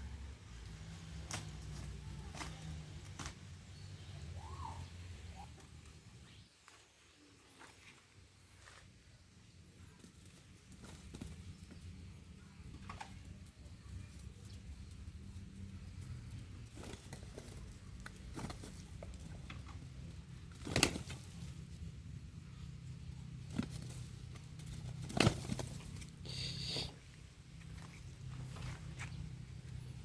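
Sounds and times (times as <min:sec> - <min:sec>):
roosters fighting strikes and scuffles: 0:01.1 - 0:03.5, 0:10.0 - 0:12.0, 0:15.9 - 0:21.9, 0:22.8 - 0:26.2.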